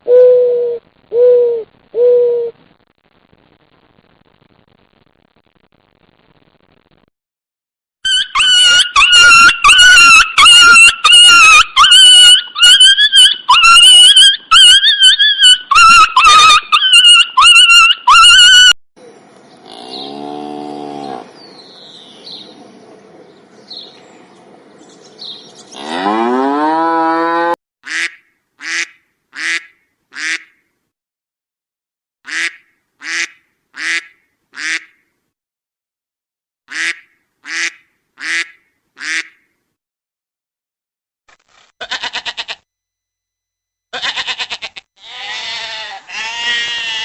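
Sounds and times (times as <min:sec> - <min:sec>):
high-pitched animal calls: 0:08.0 - 0:18.8, 0:43.9 - 0:47.0
cattle mooing: 0:19.6 - 0:21.3, 0:25.7 - 0:27.6
duck quacking: 0:32.3 - 0:35.0, 0:36.7 - 0:39.4.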